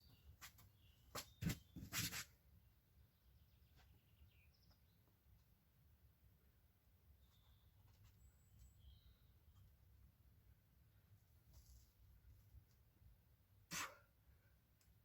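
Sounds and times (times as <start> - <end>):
faint bird chirps: 7.1 - 9.7.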